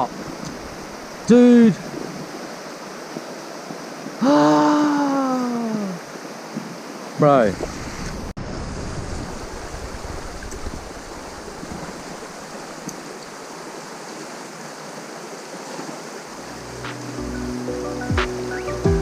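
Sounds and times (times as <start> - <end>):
river water rushing: 0.0 - 19.0
background music: 16.5 - 19.0.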